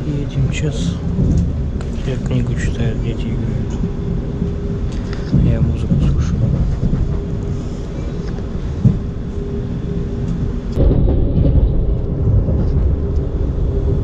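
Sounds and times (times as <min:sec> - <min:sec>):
faint steady hum: 0:00.0 - 0:14.0
train interior rumble: 0:00.0 - 0:14.0.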